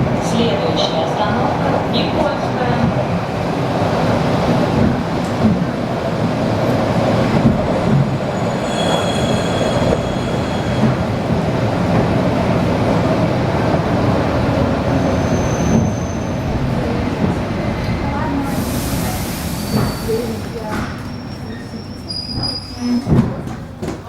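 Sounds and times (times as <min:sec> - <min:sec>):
train wheels rumbling: 0:00.0 - 0:24.0
high metallic squeals: 0:08.1 - 0:11.1.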